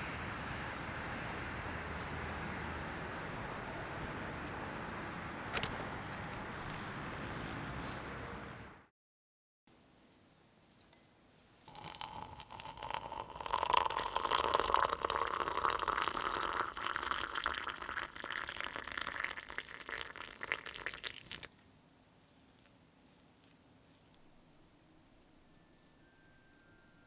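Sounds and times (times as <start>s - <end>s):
water pouring into container: 11.7s - 21.5s.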